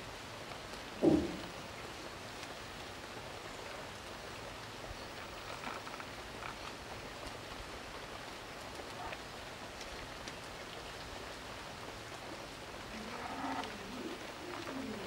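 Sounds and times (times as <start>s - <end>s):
steady hiss with faint ticks: 0.0s - 15.0s
bird cooing: 12.9s - 15.0s.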